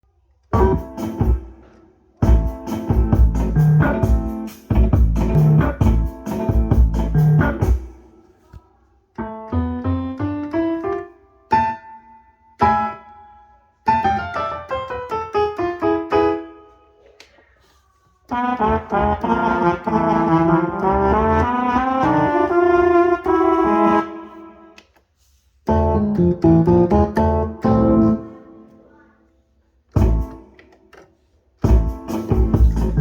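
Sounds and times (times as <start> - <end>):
keyboard accompaniment with drums: 0.6 - 8.2, 29.9 - 31.0, 31.6 - 33.0.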